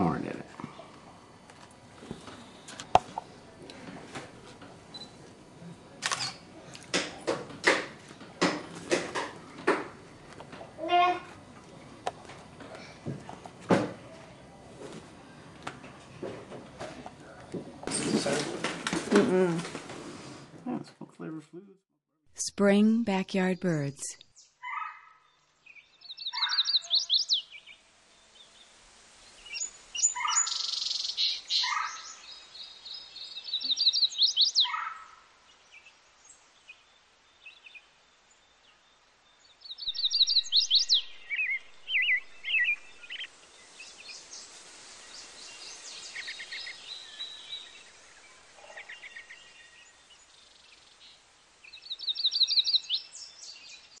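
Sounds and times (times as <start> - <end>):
songbirds chirping and trilling: 23.4 - 54.0.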